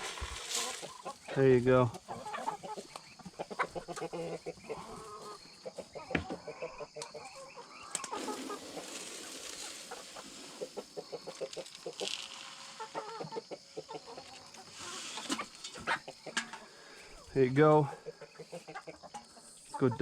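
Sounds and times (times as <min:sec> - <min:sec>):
rustling: 0:00.0 - 0:03.1, 0:08.0 - 0:13.4, 0:14.2 - 0:16.0
chickens clucking: 0:00.0 - 0:20.0.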